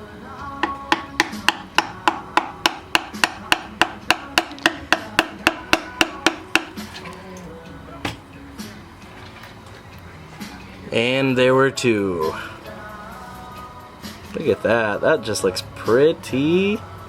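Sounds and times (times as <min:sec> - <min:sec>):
faint music: 0:00.0 - 0:17.0
hammer tapping on metal: 0:00.6 - 0:06.8.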